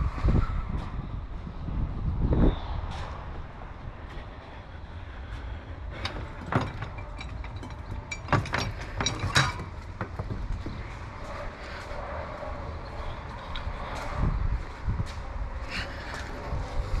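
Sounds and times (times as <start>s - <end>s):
hand tools clinking on metal: 5.9s - 10.4s.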